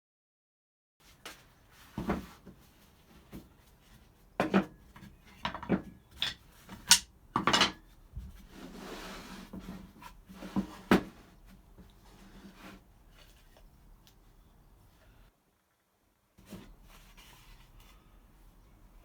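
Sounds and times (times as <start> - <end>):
wooden knocks and clatters: 4.4 - 8.4.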